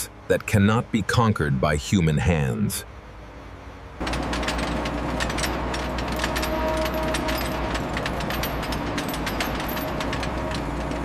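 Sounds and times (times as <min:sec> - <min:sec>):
sawmill machinery drone: 0:02.8 - 0:11.0
machinery clicks and clanks: 0:04.0 - 0:11.0.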